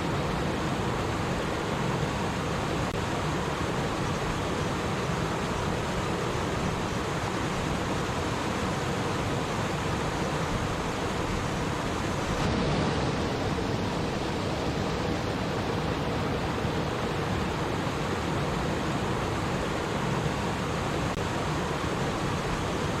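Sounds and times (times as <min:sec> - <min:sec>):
stream water babbling: 0:00.0 - 0:23.0.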